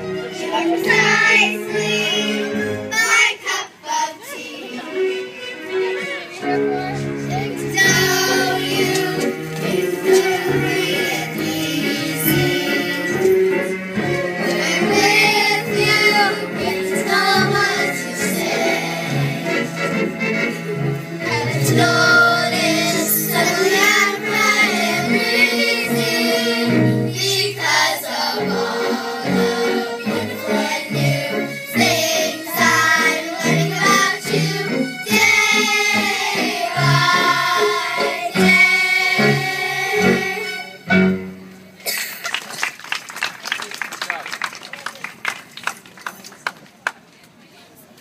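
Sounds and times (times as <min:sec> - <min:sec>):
children's choir singing: 0:00.0 - 0:05.2, 0:07.2 - 0:20.6, 0:21.2 - 0:40.8
instrumental accompaniment: 0:00.0 - 0:42.0.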